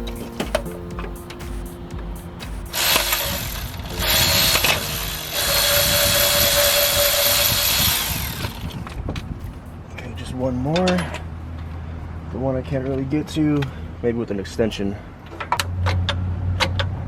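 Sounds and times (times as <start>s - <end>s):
power tool whining on bolt: 2.8s - 8.8s.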